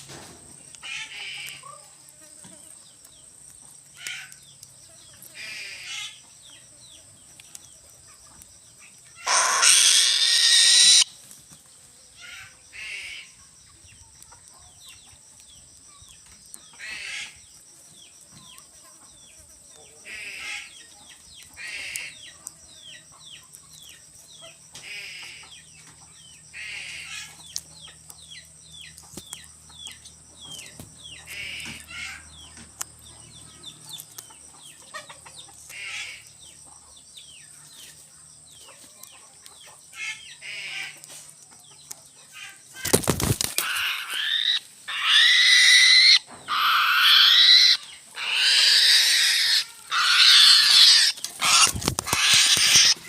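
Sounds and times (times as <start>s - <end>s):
birds chirping: 2.5s - 53.0s
harsh bird squawking: 9.2s - 11.1s, 43.6s - 53.0s.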